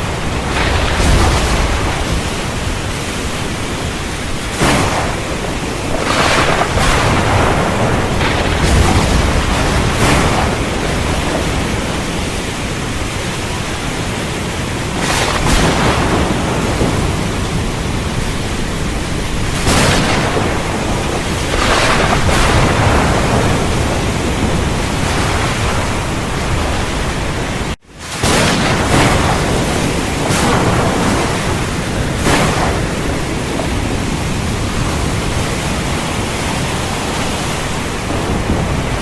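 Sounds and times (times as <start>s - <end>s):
heavy rain falling: 0.0s - 39.0s
low rolling thunder: 0.0s - 39.0s.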